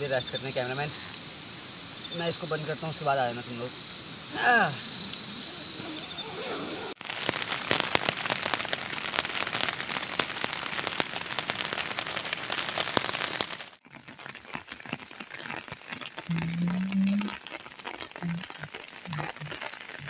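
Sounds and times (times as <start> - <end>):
rain on a tent: 6.8 - 20.0.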